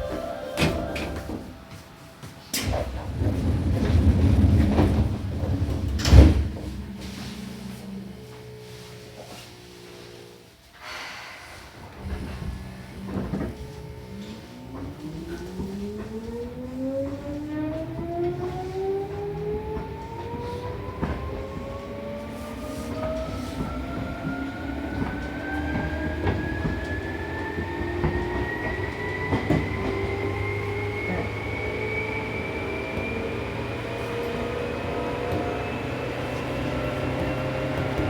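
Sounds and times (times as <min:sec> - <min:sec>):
train running rumble: 0:00.0 - 0:09.8, 0:11.2 - 0:38.0
electric train motor whine: 0:11.8 - 0:38.0.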